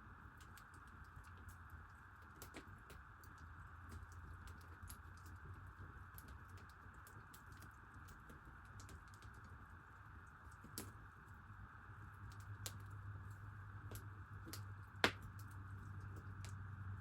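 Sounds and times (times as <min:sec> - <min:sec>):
small crackling clicks: 0:00.3 - 0:11.4, 0:12.2 - 0:16.7
low hum: 0:11.0 - 0:17.0.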